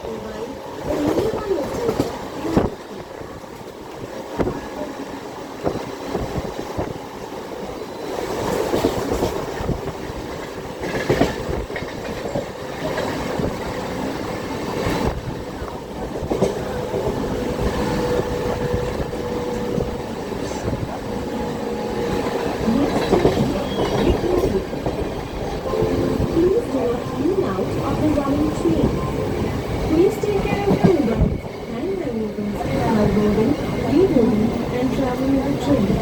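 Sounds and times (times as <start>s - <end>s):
train wheels clacking over rail joints: 8.4s - 13.9s, 22.0s - 25.6s.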